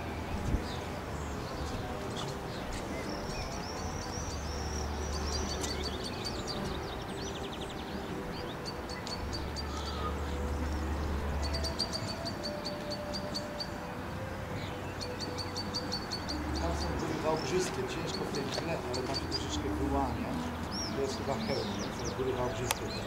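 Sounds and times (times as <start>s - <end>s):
songbirds singing: 0.0s - 23.0s.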